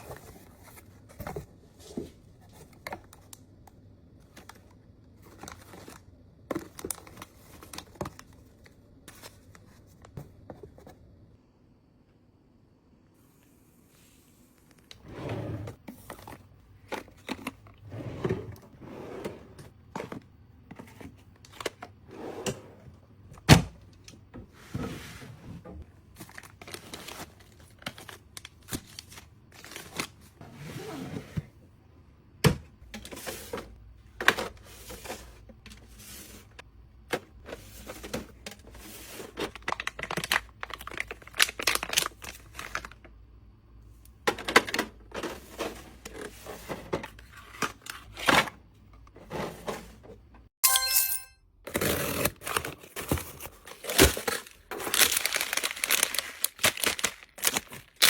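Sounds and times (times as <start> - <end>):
snack packaging crinkling: 39.6 - 43.0, 53.6 - 58.0.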